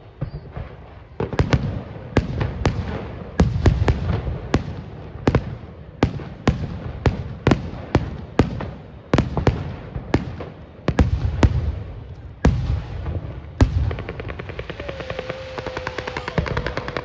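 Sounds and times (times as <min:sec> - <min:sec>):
fireworks bangs: 0:00.0 - 0:17.0
low rumble of echoing booms: 0:11.0 - 0:14.7.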